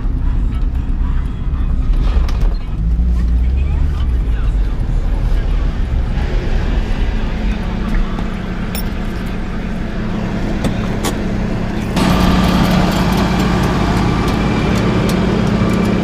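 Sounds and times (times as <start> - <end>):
car engine drone inside cabin: 0.0 - 16.0
steady high whine: 4.0 - 16.0.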